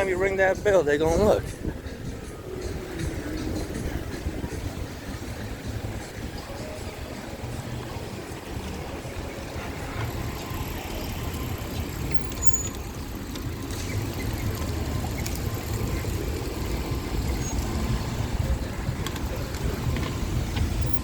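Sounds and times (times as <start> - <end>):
wind buffeting microphone: 0.0 - 9.4, 14.0 - 21.0
passing street traffic: 0.0 - 21.0.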